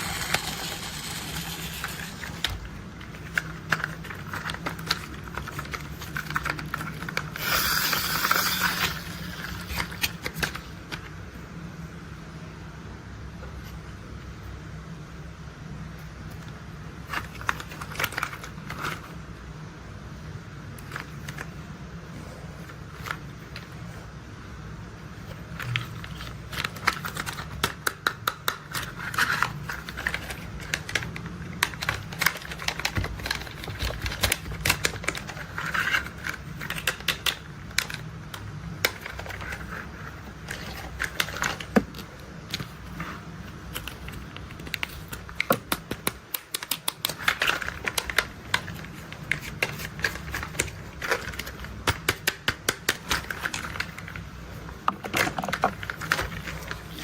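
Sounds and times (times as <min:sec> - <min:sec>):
plastic toy parts clicking and rattling: 0:00.0 - 0:11.0, 0:17.0 - 0:19.2, 0:25.5 - 0:43.0, 0:43.6 - 0:57.0
low steady hum: 0:00.0 - 0:57.0.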